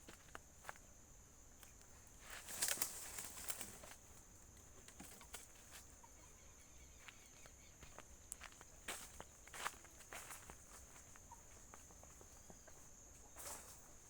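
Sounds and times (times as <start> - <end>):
dry twigs and leaves rustling: 1.6 - 6.0.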